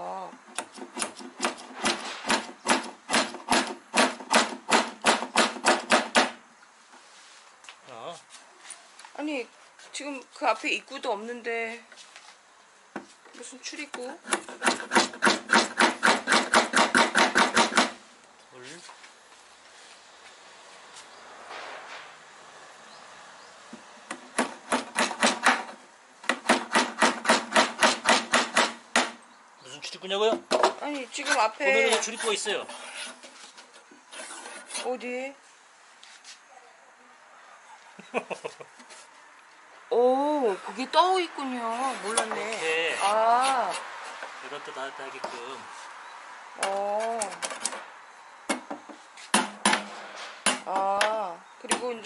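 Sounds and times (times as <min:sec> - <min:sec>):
hammer striking nails: 0:00.6 - 0:06.4, 0:14.3 - 0:18.0, 0:24.1 - 0:29.2, 0:48.5 - 0:51.1.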